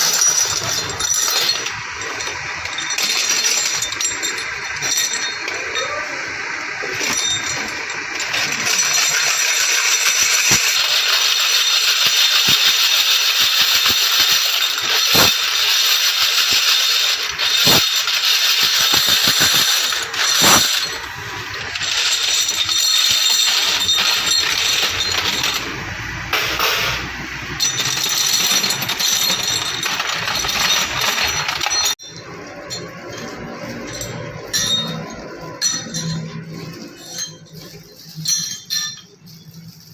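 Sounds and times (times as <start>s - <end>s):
machine hiss: 0.0s - 31.3s
metal parts clinking: 0.0s - 39.9s.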